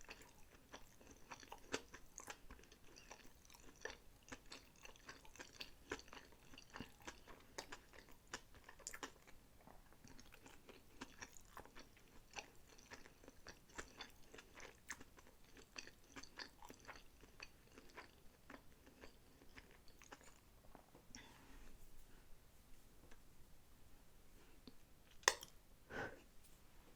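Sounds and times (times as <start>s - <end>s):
chewing with wet mouth clicks: 0.0s - 20.4s, 25.1s - 25.6s.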